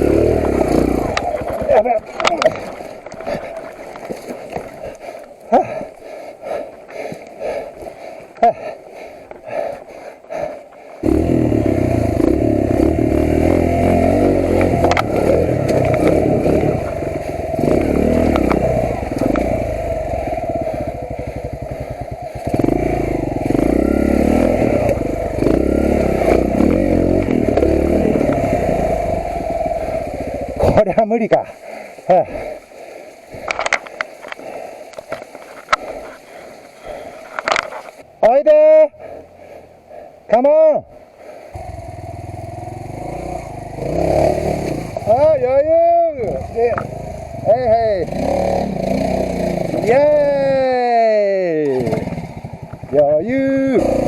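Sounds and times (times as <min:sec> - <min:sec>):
motorcycle engine running: 0:00.0 - 0:03.7, 0:11.0 - 0:30.9, 0:41.6 - 0:54.0.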